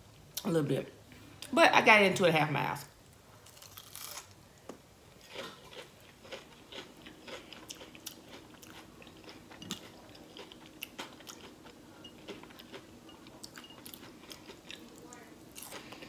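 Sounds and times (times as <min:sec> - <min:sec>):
chewing crispy onion ring: 0:03.4 - 0:04.4, 0:05.2 - 0:16.0.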